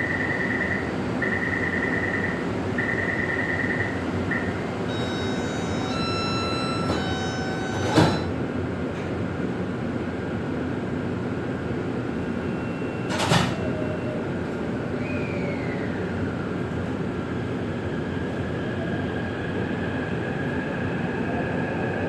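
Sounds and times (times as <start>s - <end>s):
rapid pulsed warning beep: 0.0s - 8.3s
sliding doors shutting: 4.3s - 8.4s
three-note door chime: 4.9s - 8.4s.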